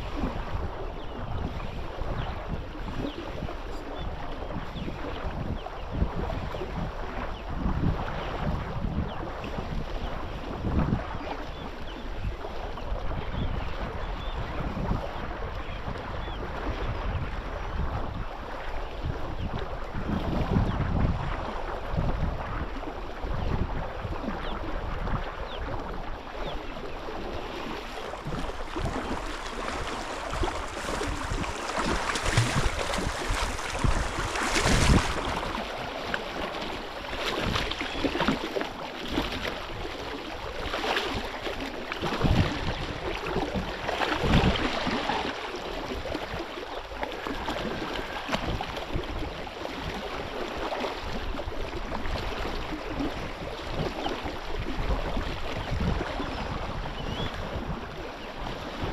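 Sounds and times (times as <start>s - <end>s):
wind: 0.0s - 58.9s
moving water surging: 21.2s - 58.9s.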